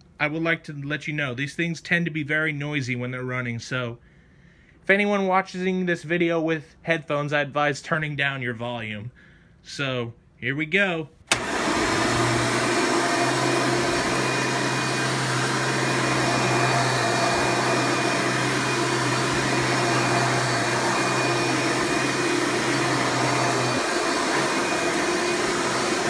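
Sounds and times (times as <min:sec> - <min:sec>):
upright vacuum cleaner running: 0:11.3 - 0:26.0.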